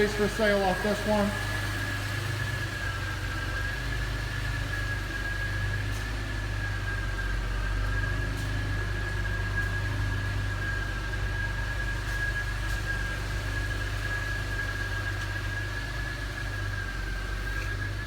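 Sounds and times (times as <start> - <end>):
high whine: 0.0 - 12.1
car engine idling: 0.0 - 18.0.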